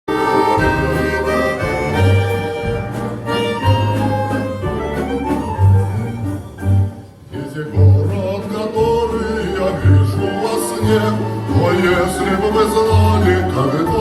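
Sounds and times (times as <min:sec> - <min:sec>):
orchestral music with bowed strings: 0:00.1 - 0:14.0.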